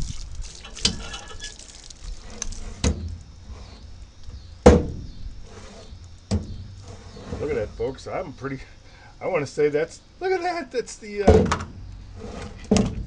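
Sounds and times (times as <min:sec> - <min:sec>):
faint background hiss: 0:00.0 - 0:13.0
sharp knocks: 0:04.6 - 0:05.1.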